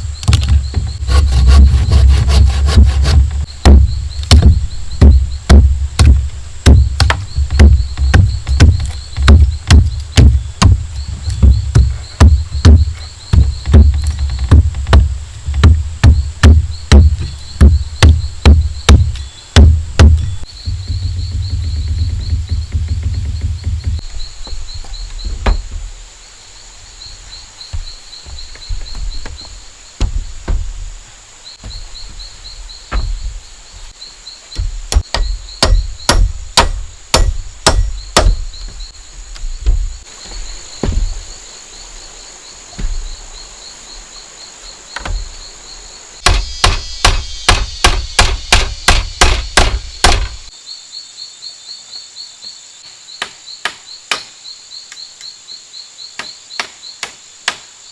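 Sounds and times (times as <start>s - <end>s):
insects pulsing chirp: 0.0s - 57.9s
insects whining: 0.0s - 57.9s
blade chopping bamboo: 0.2s - 20.4s, 34.6s - 38.8s, 46.2s - 50.5s.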